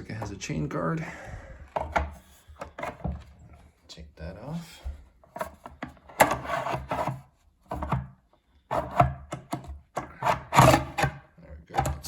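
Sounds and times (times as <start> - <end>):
plastic guard rubbing and scraping: 1.6 - 3.8, 4.8 - 12.0.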